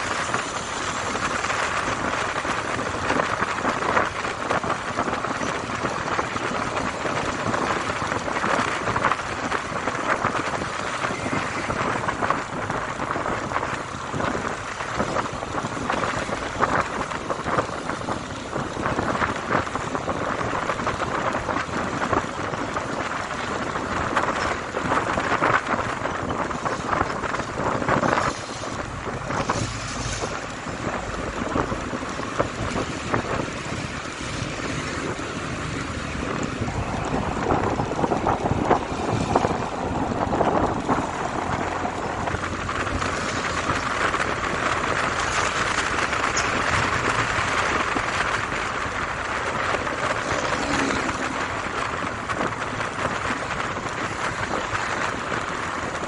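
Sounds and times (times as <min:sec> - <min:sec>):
road noise: 0:00.0 - 0:56.0
wind rushing over microphone: 0:00.0 - 0:56.0.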